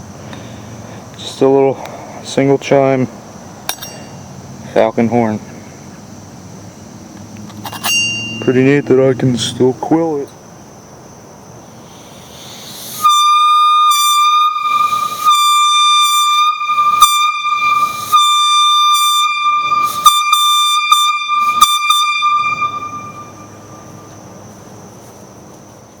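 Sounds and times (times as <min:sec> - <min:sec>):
air horn tone: 0:12.9 - 0:24.2.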